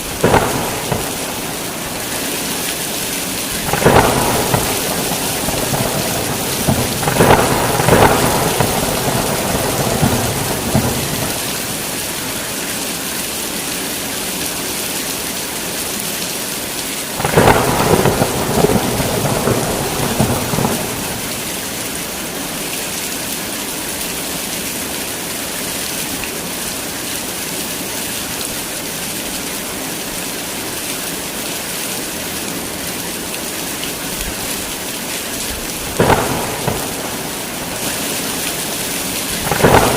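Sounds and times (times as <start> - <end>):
thunder rumbling: 0.0 - 12.5, 17.2 - 22.2, 35.5 - 39.9
heavy rain falling: 0.0 - 39.9.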